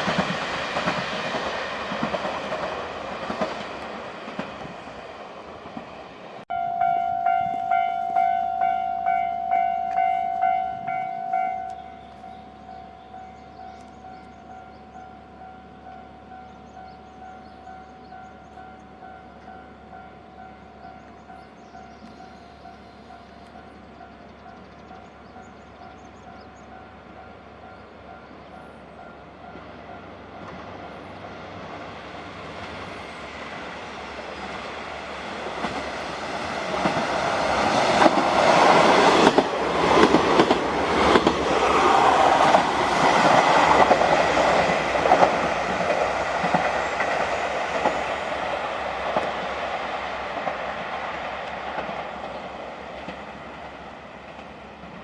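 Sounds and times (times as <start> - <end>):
wheels clacking over rail joints: 0.0 - 6.4, 29.5 - 55.0
diesel train passing: 0.0 - 55.0.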